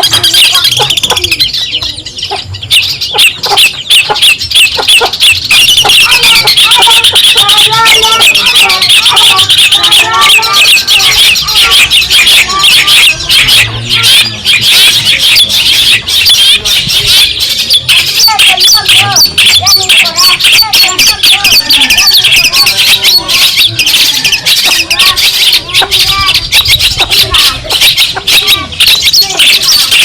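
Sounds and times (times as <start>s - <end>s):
shrike singing scratchy chatter: 0.0s - 30.0s.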